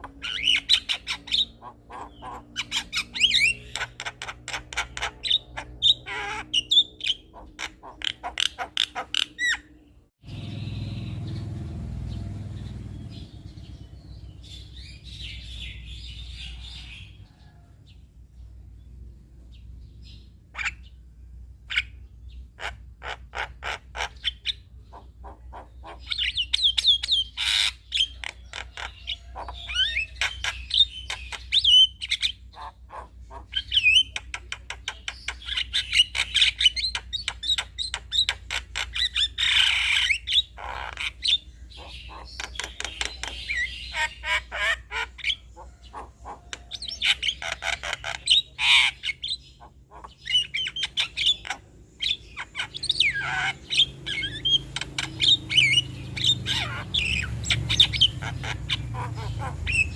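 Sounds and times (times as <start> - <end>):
myna chattering song: 52.4 - 59.9.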